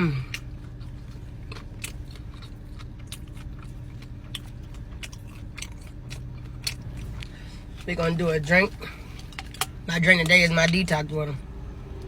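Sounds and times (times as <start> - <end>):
steady low hum: 0.0 - 12.0
chewing mouth clicks and smacks: 0.3 - 8.1.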